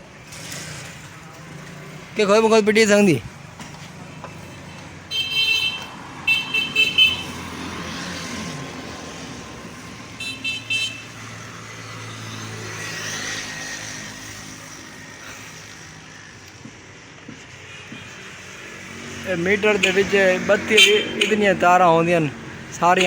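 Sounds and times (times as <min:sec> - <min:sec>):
road traffic noise: 0:00.0 - 0:23.0
motorcycle horn stuttering beep: 0:05.1 - 0:07.4, 0:10.2 - 0:11.2.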